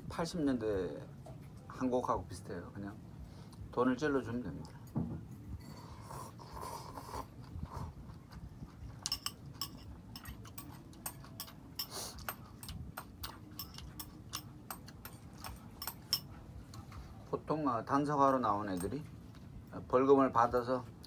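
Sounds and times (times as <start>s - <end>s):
person chewing noodles: 5.8s - 16.9s.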